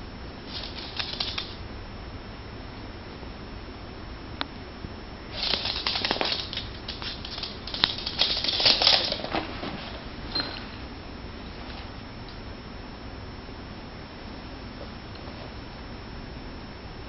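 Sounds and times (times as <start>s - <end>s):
kitten and dog scuffling: 0.4s - 1.6s, 5.3s - 12.0s.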